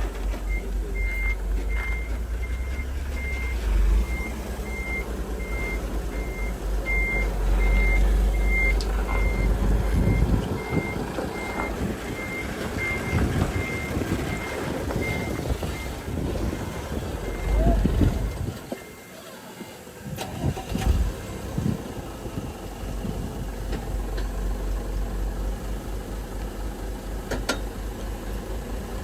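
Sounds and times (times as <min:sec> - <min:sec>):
diesel engine rumble: 0:00.0 - 0:29.0
reversing alarm beeping: 0:00.4 - 0:19.2.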